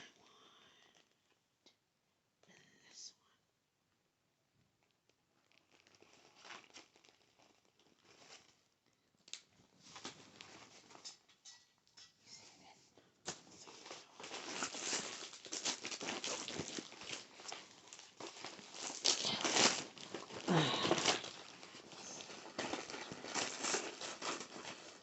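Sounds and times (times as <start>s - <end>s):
cards crinkling and tapping: 13.2s - 25.0s.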